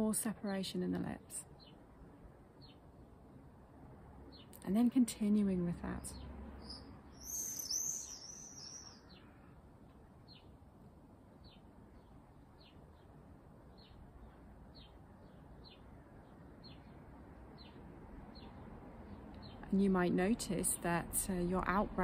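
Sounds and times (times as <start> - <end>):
bird singing: 5.8 - 9.6, 13.7 - 17.0.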